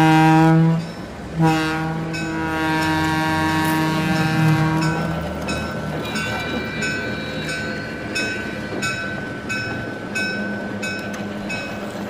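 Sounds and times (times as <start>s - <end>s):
regular clicks of toy train: 10.8s - 12.0s.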